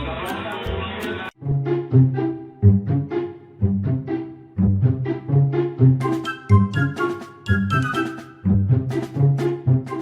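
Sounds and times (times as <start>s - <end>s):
lively melody over bass line: 3.8s - 10.0s.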